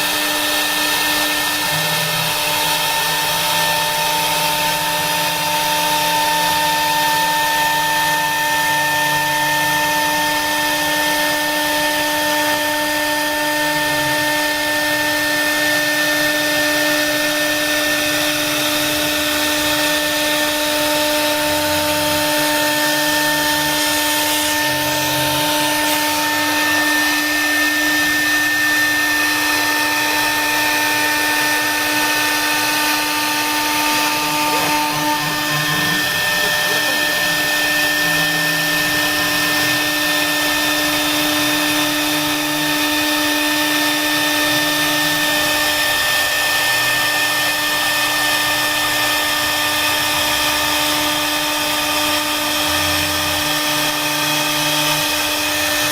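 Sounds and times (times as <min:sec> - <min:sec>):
cnc router spindle whine: 0:00.0 - 0:55.9
low motor hum: 0:18.2 - 0:46.4.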